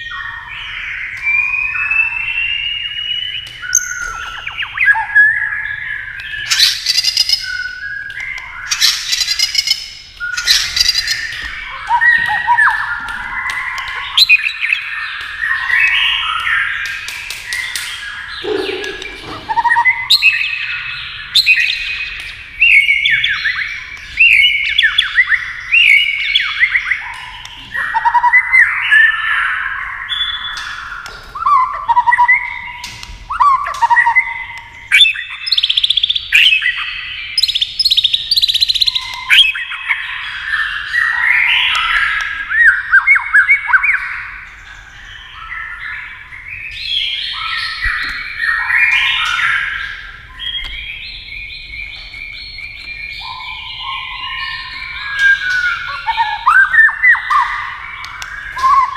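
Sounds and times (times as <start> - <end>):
bird singing whistled phrases: 0.0 - 16.8, 17.4 - 44.3, 45.2 - 58.9
bird sharp clicking notes: 6.2 - 20.4, 21.4 - 28.6, 54.7 - 58.9.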